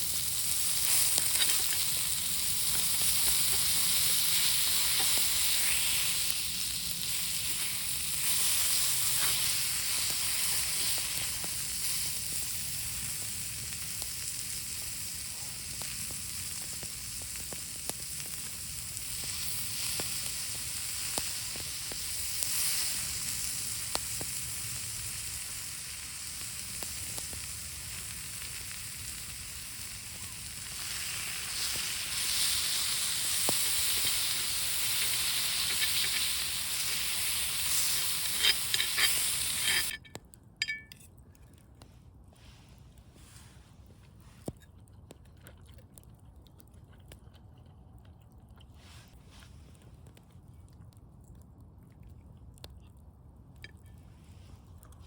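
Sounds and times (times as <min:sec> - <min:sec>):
food sizzling in a pan: 0:00.0 - 0:40.0.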